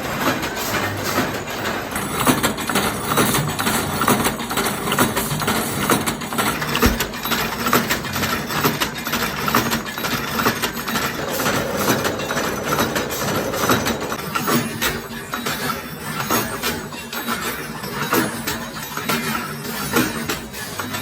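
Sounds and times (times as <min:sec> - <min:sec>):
factory machinery running: 0:10.9 - 0:14.8.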